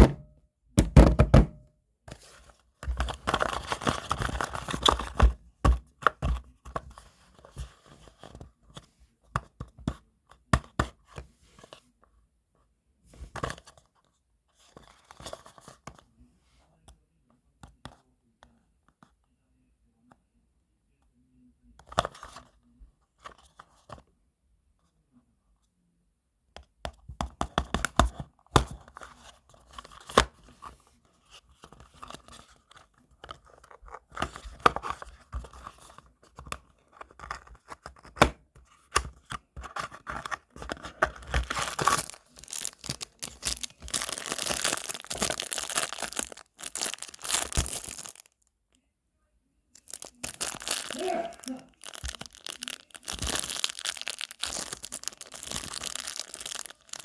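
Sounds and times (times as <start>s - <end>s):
plastic packaging tearing and crinkling: 41.2s - 48.3s, 49.8s - 57.0s.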